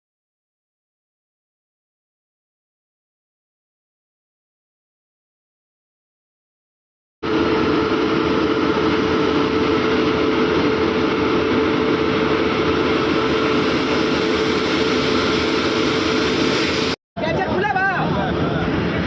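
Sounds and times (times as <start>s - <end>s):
train rumbling: 7.2s - 19.0s.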